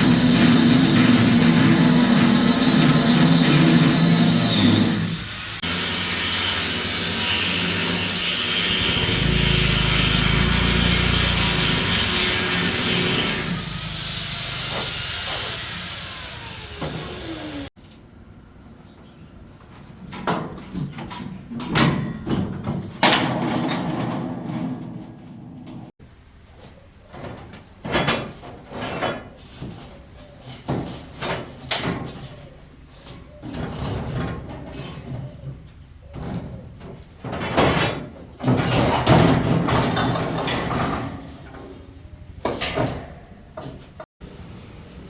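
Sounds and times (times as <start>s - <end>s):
knocks and clatter: 36.1s - 44.1s.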